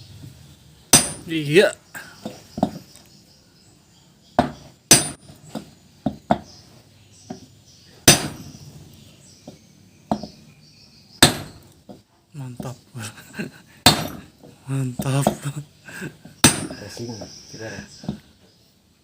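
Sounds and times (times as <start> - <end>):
hammer striking metal: 0.9 - 1.4, 4.4 - 5.3, 8.0 - 8.5, 11.2 - 11.6, 13.8 - 14.2, 16.4 - 16.8.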